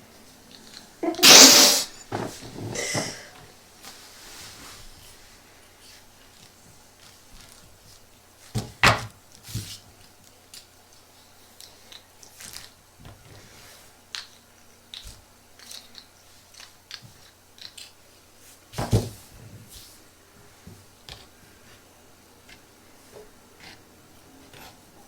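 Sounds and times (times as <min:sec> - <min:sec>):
small handling clicks and crinkles: 0:04.8 - 0:08.6, 0:09.2 - 0:18.8.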